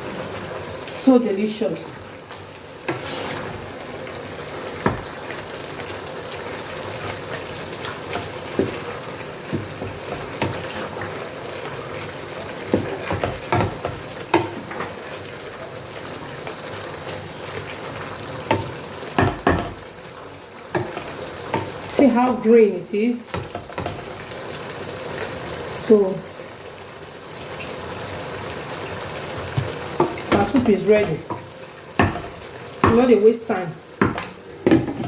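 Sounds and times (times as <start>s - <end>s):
soup sizzling in a pot: 0.0s - 35.0s
spoon knocking against pot: 12.7s - 14.9s, 18.5s - 19.8s, 29.6s - 33.1s, 34.0s - 35.0s.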